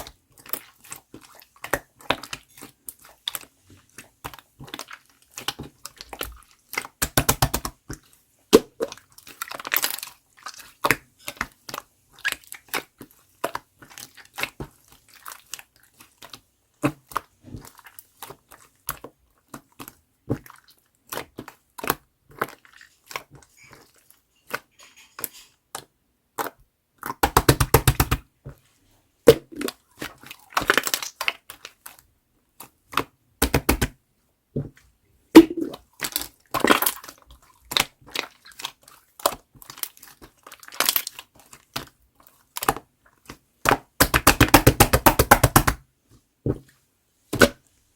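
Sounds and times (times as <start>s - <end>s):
toy crinkling and crackling: 22.8s - 25.6s.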